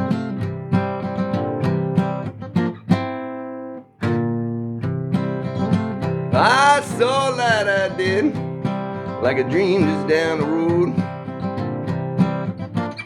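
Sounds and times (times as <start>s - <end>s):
acoustic guitar chords: 0.0s - 13.0s
person singing: 6.3s - 11.1s.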